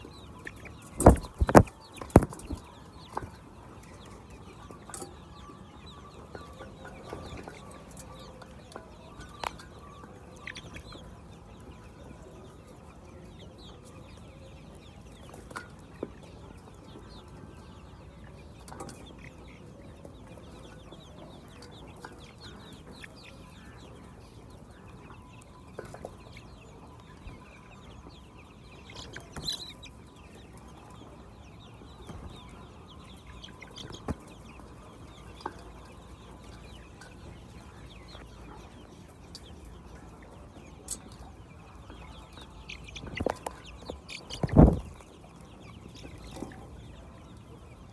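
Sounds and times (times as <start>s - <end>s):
hens clucking: 0.1s - 13.0s, 28.4s - 47.9s.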